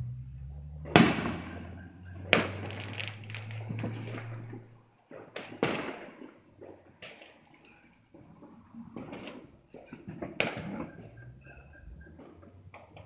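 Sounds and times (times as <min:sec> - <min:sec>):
fireworks bangs: 0:00.8 - 0:07.5, 0:08.2 - 0:13.0
crackling firework pops: 0:00.9 - 0:11.1.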